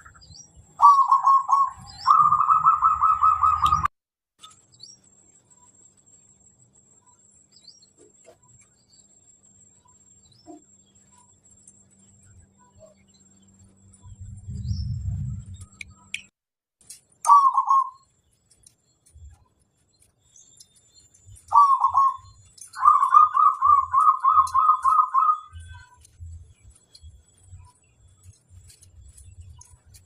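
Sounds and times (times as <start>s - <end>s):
dove cooing: 0.8s - 3.9s, 21.5s - 22.2s, 22.8s - 25.5s
low rumble: 13.8s - 16.0s.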